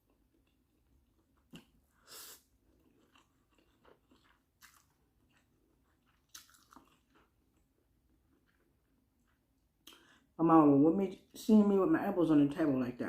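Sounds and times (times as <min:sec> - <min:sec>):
person chewing noodles: 0:00.0 - 0:10.3.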